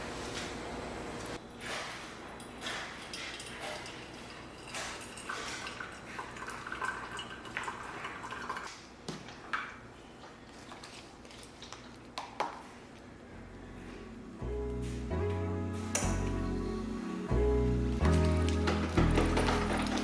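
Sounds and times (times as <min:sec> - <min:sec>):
water trickling and dripping: 0:03.0 - 0:08.7
light clinks and knocks: 0:18.6 - 0:20.0.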